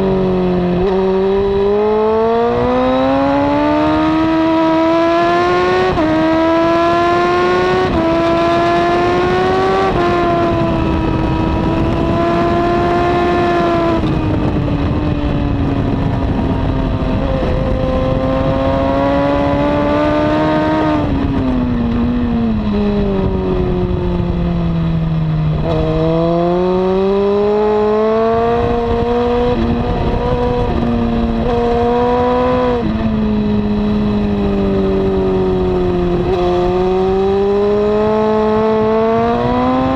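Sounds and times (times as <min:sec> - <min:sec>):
heavy wind noise: 0:00.0 - 0:39.9
motorcycle engine accelerating: 0:00.0 - 0:39.9.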